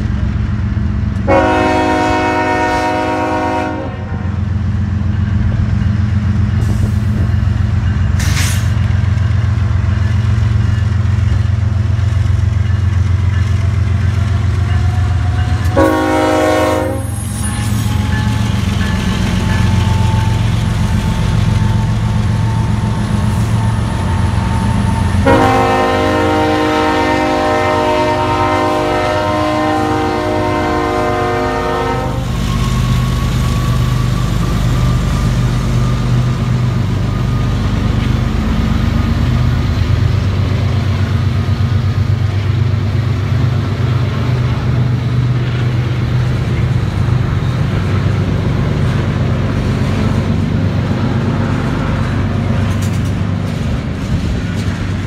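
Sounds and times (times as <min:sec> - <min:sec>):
diesel locomotives rumbling: 0:00.0 - 0:55.0
train horn blasts: 0:01.2 - 0:04.4, 0:14.6 - 0:20.4, 0:23.8 - 0:32.4.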